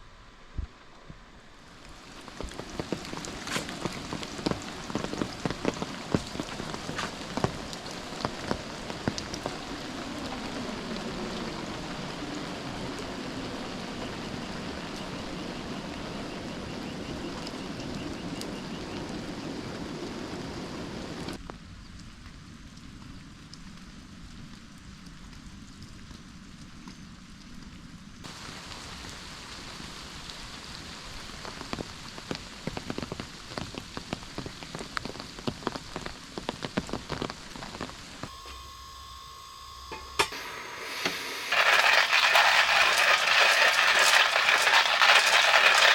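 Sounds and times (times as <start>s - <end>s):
rain falling steadily: 0.0s - 38.8s, 39.8s - 45.9s
heavy raindrops striking: 1.6s - 21.4s, 28.3s - 45.9s.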